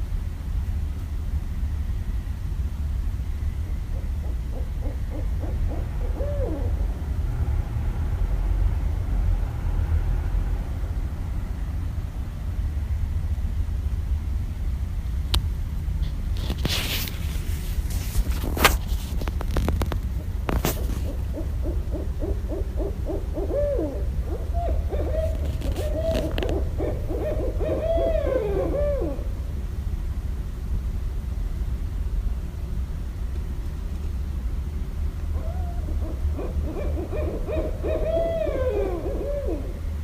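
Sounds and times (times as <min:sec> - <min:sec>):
owl hooting and cackling: 0:03.6 - 0:07.2, 0:20.5 - 0:29.6, 0:35.3 - 0:40.0.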